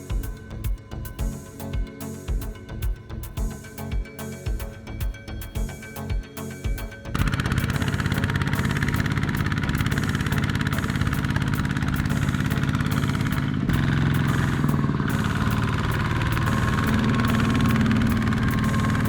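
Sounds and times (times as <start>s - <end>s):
music: 0.0s - 19.0s
tractor engine chugging: 7.1s - 19.0s.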